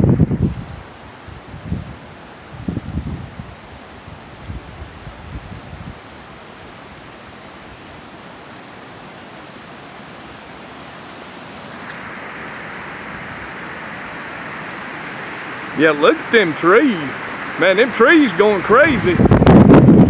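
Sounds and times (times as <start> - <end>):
wind buffeting microphone: 0.0 - 6.0, 11.7 - 20.0
strong wind rushing through trees: 0.0 - 20.0.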